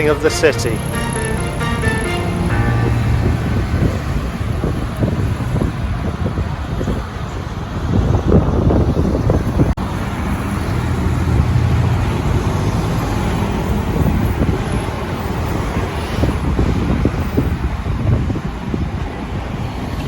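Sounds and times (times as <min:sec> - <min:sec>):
bus engine: 0:00.0 - 0:20.0
road traffic: 0:00.0 - 0:20.0
wind buffeting microphone: 0:03.0 - 0:12.9, 0:15.8 - 0:20.0.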